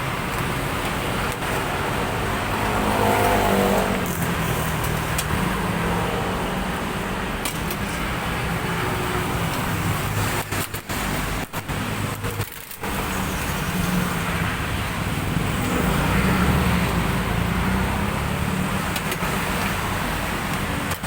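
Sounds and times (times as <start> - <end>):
road traffic noise: 0.0 - 21.0
motor vehicle passing: 1.6 - 6.8, 15.3 - 18.9.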